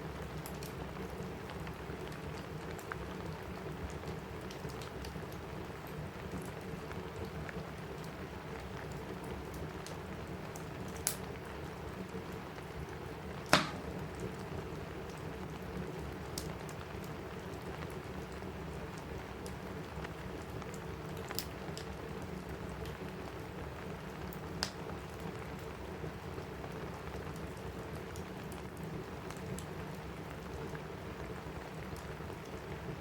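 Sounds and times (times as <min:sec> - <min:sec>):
crackling wood fire: 0:00.0 - 0:33.0
rain on a roof: 0:00.0 - 0:33.0
fire pops: 0:13.4 - 0:14.7.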